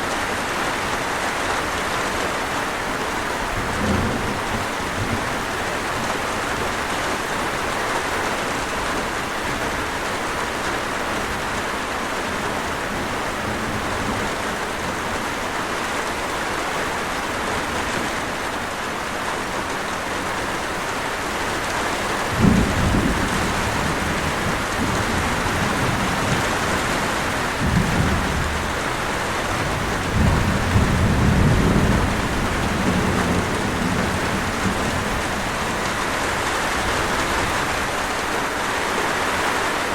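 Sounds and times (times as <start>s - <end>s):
steady rain falling: 0.0s - 39.9s
thunder rumbling: 3.4s - 6.8s, 22.2s - 38.3s.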